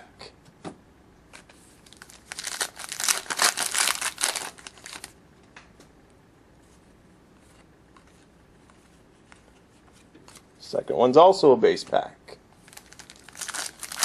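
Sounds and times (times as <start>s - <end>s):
wrapper tearing and crinkling: 1.8s - 5.2s, 12.6s - 14.0s.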